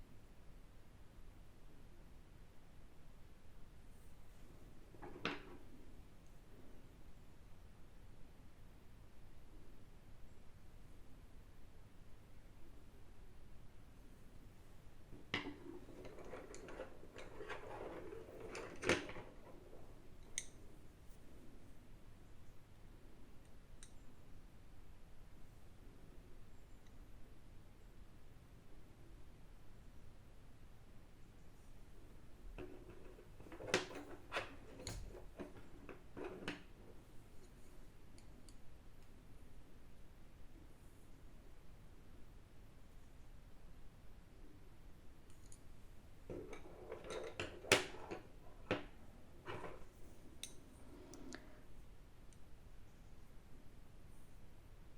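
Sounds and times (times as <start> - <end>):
small objects handled on a table: 4.3 - 6.0, 15.1 - 21.4, 32.1 - 38.6, 46.2 - 51.6.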